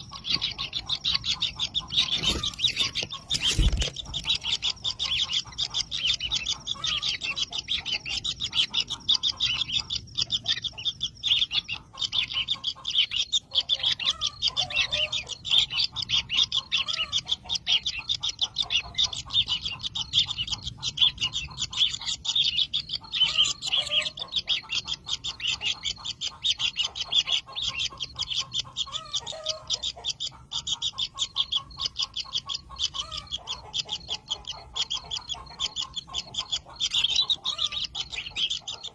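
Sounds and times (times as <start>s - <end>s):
chicks ticking calls: 0.0s - 38.9s.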